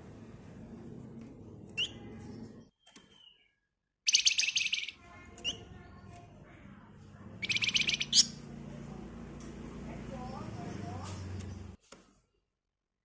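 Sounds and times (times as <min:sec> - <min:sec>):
bird single chirps: 0:02.7 - 0:05.7, 0:07.4 - 0:08.4
songbird rattling trills: 0:04.1 - 0:05.7, 0:07.4 - 0:08.4.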